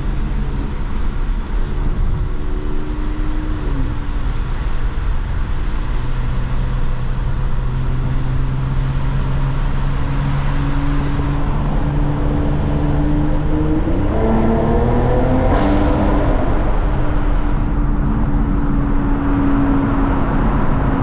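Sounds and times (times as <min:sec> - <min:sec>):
car engine cruising: 0:00.0 - 0:21.0
road and tyre rumble: 0:00.0 - 0:21.0.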